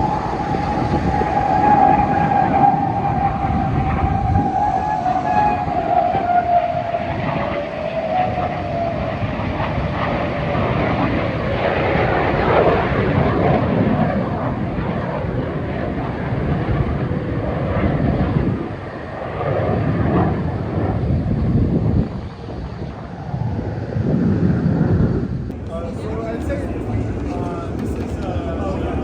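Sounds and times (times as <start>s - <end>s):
engine whine falling in pitch: 0.0s - 9.2s
aircraft engine roar: 0.0s - 29.0s.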